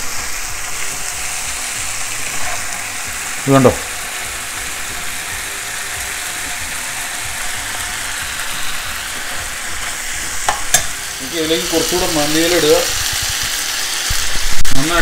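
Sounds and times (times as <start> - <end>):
meat and peppers sizzling in pan: 0.0 - 15.0
metal spatula clicking on pan: 10.5 - 10.9.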